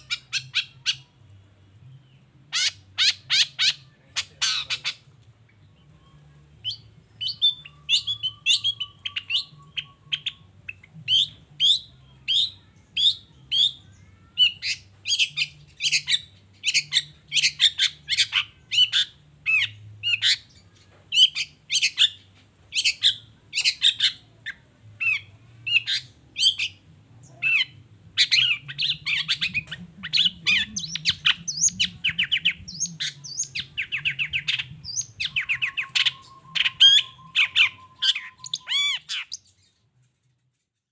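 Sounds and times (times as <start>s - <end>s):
shrike calling: 27.4s - 39.4s.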